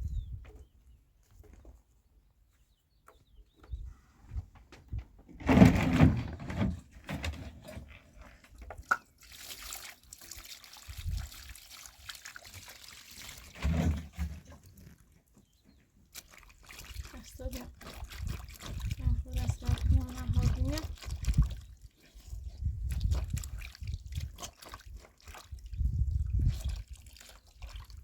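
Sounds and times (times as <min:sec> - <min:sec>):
water pouring and splashing: 0:07.8 - 0:15.3, 0:16.0 - 0:28.0
water trickling: 0:08.7 - 0:15.0, 0:16.1 - 0:21.9.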